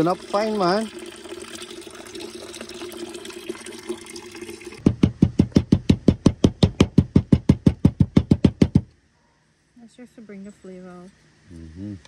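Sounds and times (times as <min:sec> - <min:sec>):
steady hiss of running liquid: 0:00.0 - 0:04.8
fast even knocking: 0:04.8 - 0:08.9.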